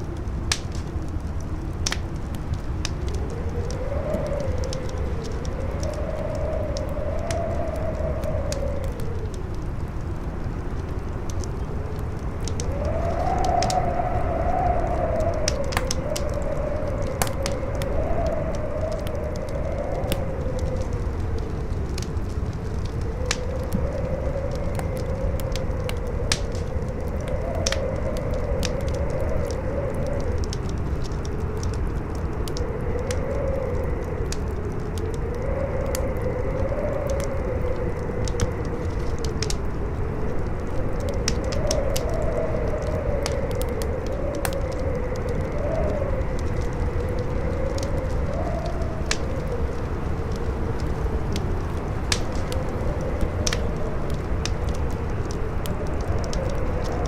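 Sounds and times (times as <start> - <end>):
wind howling: 0.0 - 57.0
wood fire crackling: 0.0 - 57.0.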